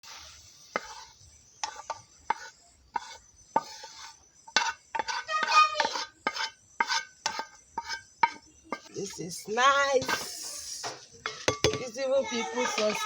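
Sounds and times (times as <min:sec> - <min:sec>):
metal spoon clinking on pot: 0:11.2 - 0:12.0.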